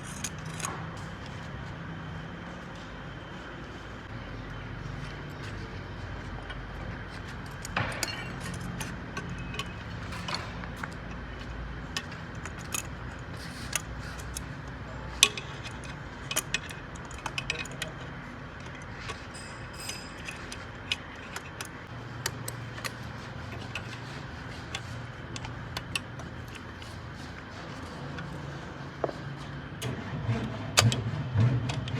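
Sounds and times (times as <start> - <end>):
metal tools clinking and tapping: 6.4 - 28.4.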